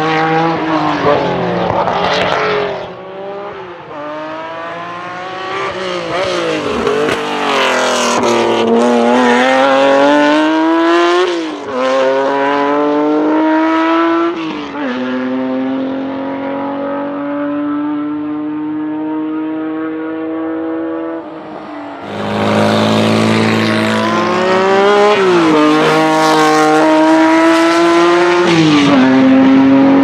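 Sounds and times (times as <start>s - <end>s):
race car engine revving: 15.2s - 30.0s.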